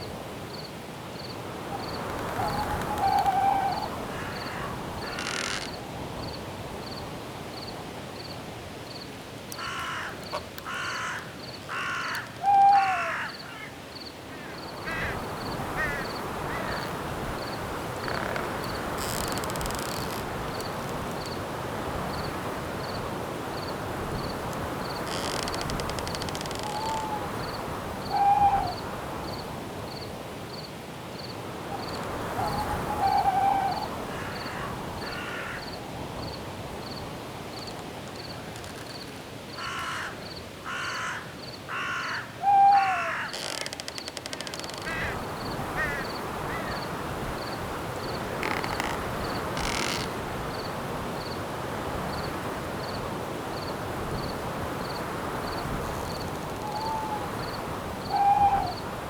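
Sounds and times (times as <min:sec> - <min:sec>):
insect chirping: 0:00.0 - 0:21.4, 0:22.0 - 0:42.2, 0:42.8 - 0:51.4, 0:53.6 - 0:58.9
wind in trees: 0:00.0 - 0:59.0
owl hooting: 0:02.1 - 0:05.6, 0:10.7 - 0:13.7, 0:26.6 - 0:27.4, 0:28.1 - 0:28.8, 0:32.3 - 0:35.3, 0:41.7 - 0:43.6, 0:56.6 - 0:57.4, 0:58.0 - 0:58.8
crow cawing: 0:02.2 - 0:05.8, 0:09.6 - 0:16.9, 0:33.1 - 0:35.8, 0:39.6 - 0:45.2, 0:45.8 - 0:46.9.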